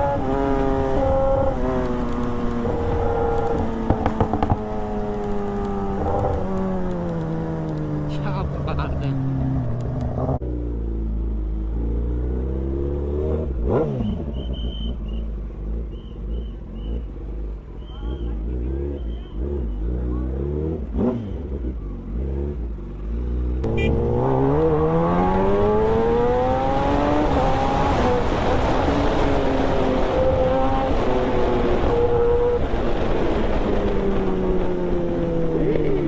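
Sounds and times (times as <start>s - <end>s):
engine revving and accelerating: 0.0s - 10.9s, 11.6s - 17.2s, 17.8s - 36.0s.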